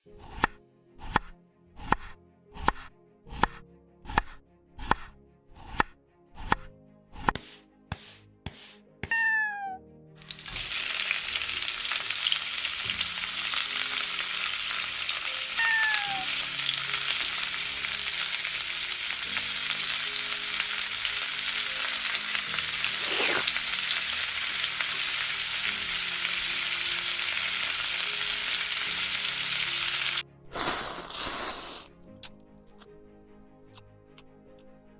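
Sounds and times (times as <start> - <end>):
food sizzling in frying pan: 10.2 - 31.8
falling chirp: 15.6 - 16.3.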